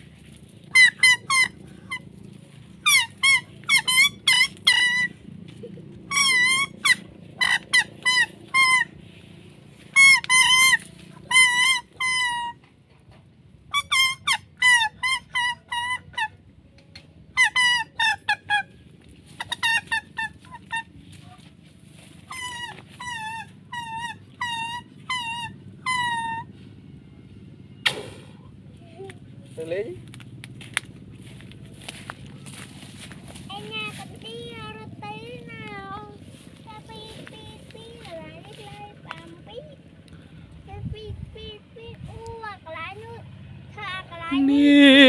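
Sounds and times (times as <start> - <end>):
fowl calling: 0.0 - 12.6.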